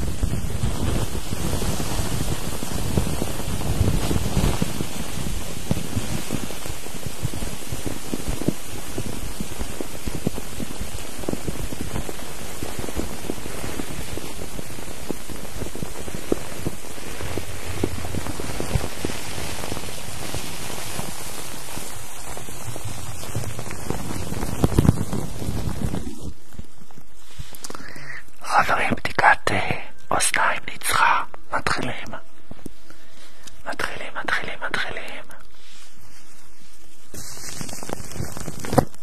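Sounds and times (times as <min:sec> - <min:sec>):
rain-like hiss with crackles: 0:00.0 - 0:39.0.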